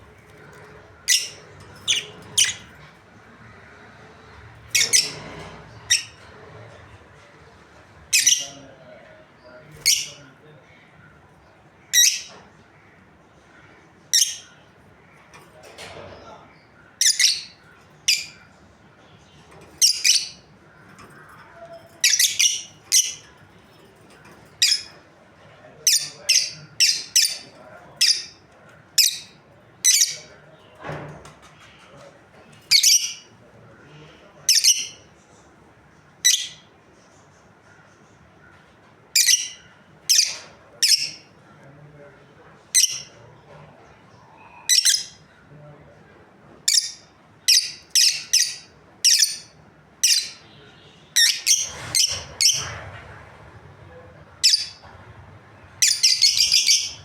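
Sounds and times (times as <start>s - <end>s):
lovebirds chirping shrilly: 1.0s - 2.8s, 4.7s - 6.2s, 55.7s - 57.0s.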